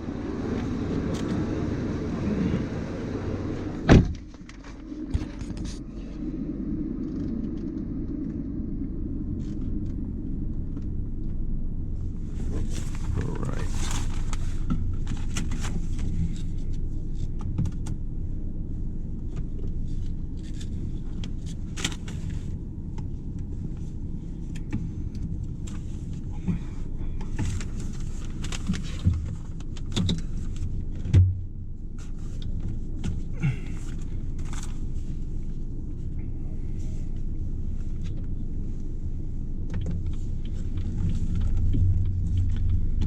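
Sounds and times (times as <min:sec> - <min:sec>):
car engine rumbling: 0:00.0 - 0:43.0
engine clicks and knocks: 0:12.2 - 0:18.3, 0:19.2 - 0:34.8, 0:39.6 - 0:43.0.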